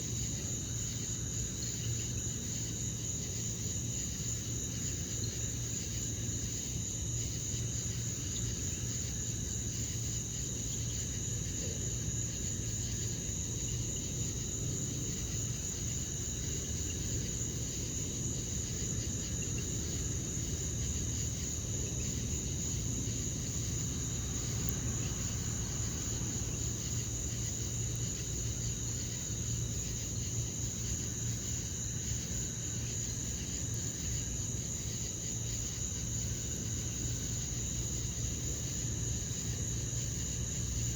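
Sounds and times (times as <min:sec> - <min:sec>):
night insects trilling: 0:00.0 - 0:40.9
low steady hum: 0:11.4 - 0:30.0.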